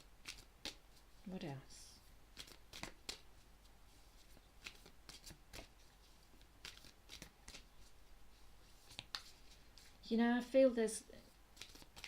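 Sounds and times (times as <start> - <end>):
cards flicking and tapping: 0.2 - 0.8, 2.3 - 3.3, 4.6 - 7.9, 8.8 - 9.9, 11.6 - 12.0.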